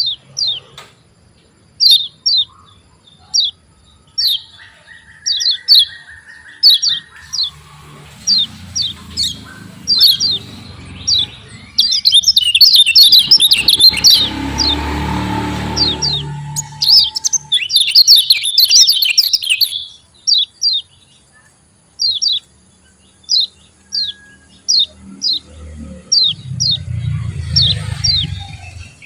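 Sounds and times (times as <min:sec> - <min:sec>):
bird chirping: 0:01.4 - 0:29.0
low rumble: 0:13.2 - 0:17.9, 0:25.8 - 0:29.0
buzzy steady note: 0:13.2 - 0:18.6.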